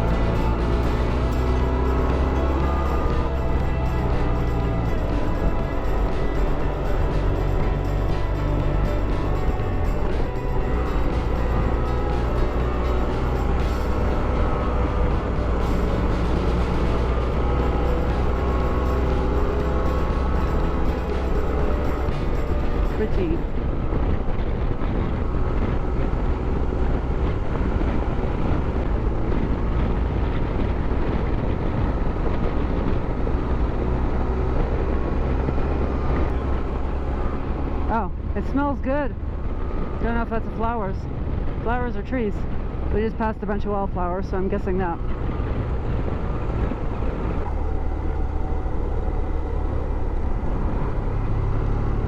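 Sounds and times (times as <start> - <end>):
motorcycle engine cruising: 0.0 - 52.0
wind and road noise: 0.0 - 52.0.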